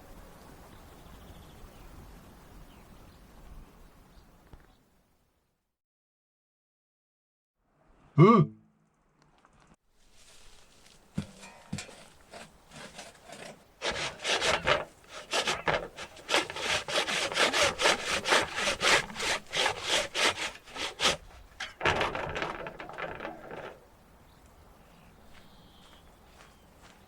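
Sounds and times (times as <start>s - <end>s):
hand saw cutting log: 11.2s - 23.8s.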